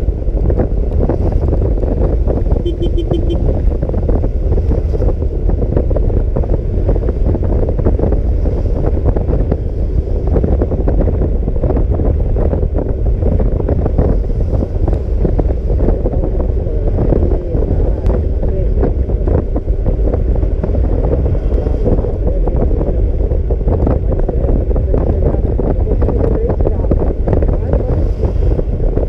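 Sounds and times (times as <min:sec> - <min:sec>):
road noise: 0:00.0 - 0:29.0
wind buffeting microphone: 0:00.0 - 0:29.0
short beeps: 0:02.6 - 0:03.5.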